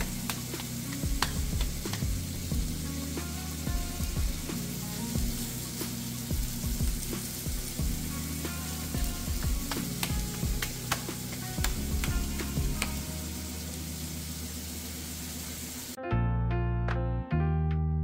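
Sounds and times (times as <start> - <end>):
background music: 0.0 - 14.7, 16.0 - 18.0
food sizzling in a pan: 0.0 - 16.0
oil spatter pops: 9.3 - 13.0.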